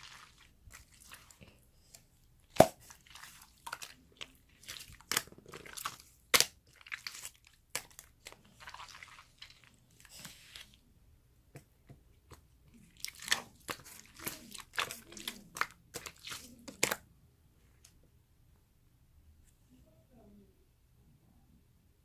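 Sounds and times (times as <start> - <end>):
slime squelching: 0.0 - 10.9, 11.6 - 17.1.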